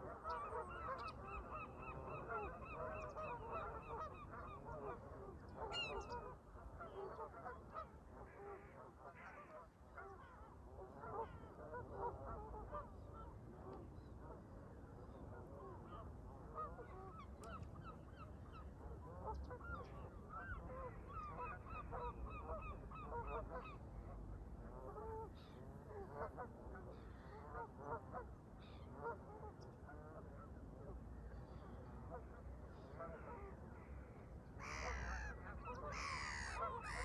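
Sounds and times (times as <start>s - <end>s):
geese honking: 34.6s - 37.0s.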